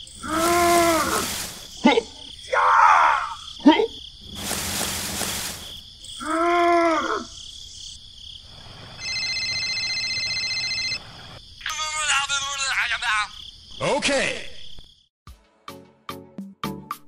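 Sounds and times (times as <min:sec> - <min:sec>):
cricket chorus: 0:00.0 - 0:15.1
short hiss: 0:00.4 - 0:01.8, 0:04.3 - 0:05.8
phone ringtone: 0:09.0 - 0:11.0.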